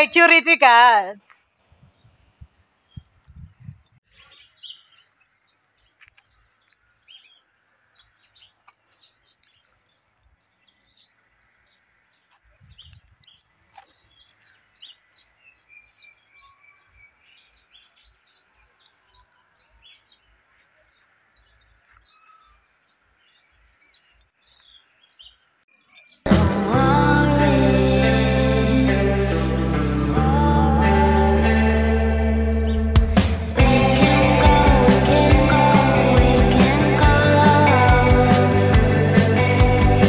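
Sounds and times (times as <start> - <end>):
birds chirping: 0.0 - 29.0, 32.0 - 40.0
dull low thumps: 3.0 - 4.0, 29.2 - 40.0.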